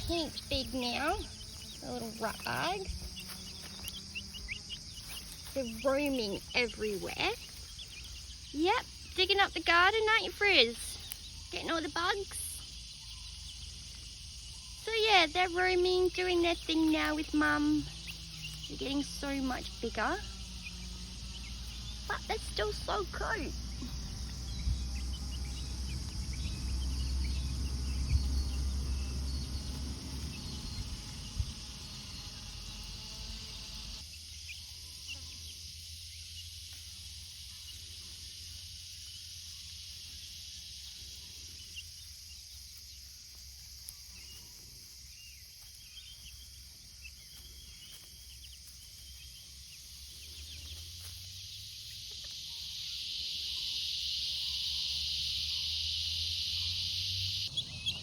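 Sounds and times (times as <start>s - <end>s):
chicks peeping: 0.0s - 58.0s
high insect drone: 0.0s - 58.0s
low rumble: 23.5s - 32.7s.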